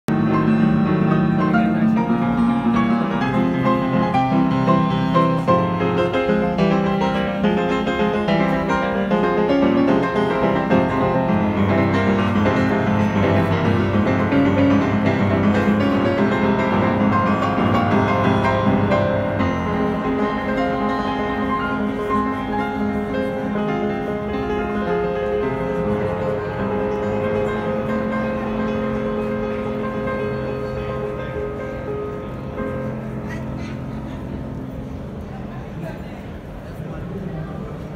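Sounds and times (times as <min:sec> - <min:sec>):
grand piano classical piece: 0:00.1 - 0:37.9.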